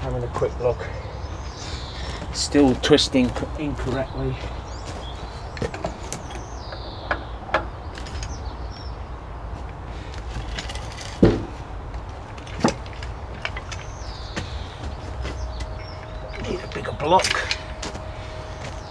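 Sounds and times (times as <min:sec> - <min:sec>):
steady low rumble: 0:00.0 - 0:18.9
jack clunking: 0:10.2 - 0:18.8.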